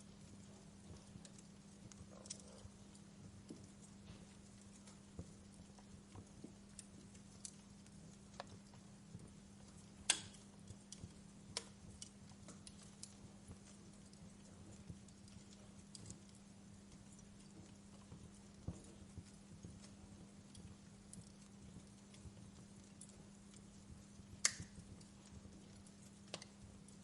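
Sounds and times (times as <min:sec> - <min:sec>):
faint low hum and hiss: 0:00.0 - 0:27.0
wood fire crackling: 0:00.0 - 0:27.0.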